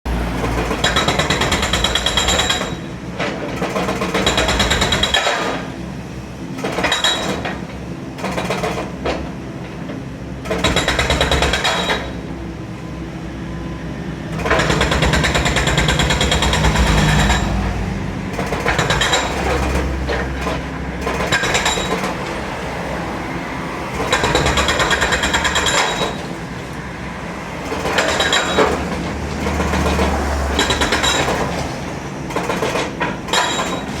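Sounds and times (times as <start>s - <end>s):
machine rumble: 13.7s - 20.8s
breaker hammering concrete: 14.4s - 22.3s, 23.9s - 26.4s, 27.6s - 31.7s.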